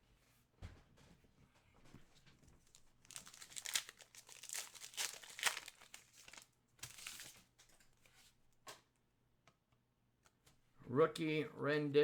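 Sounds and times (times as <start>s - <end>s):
card packaging crinkling: 2.6s - 7.5s.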